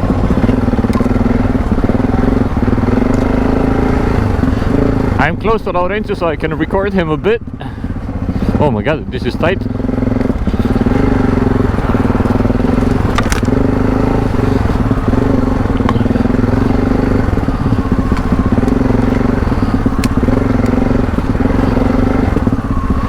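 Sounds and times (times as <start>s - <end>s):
motorcycle engine running: 0.0s - 23.0s
sharp clicks and knocks: 12.8s - 13.6s.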